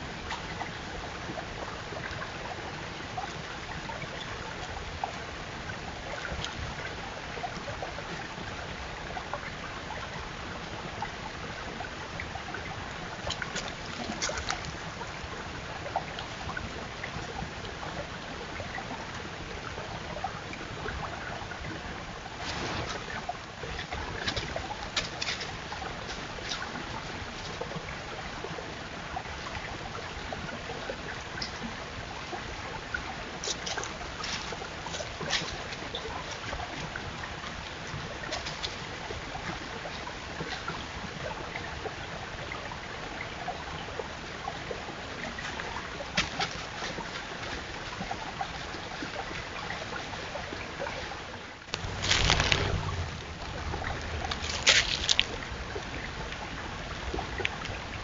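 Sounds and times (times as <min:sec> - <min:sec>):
deer crunching apples: 0:51.8 - 0:55.4.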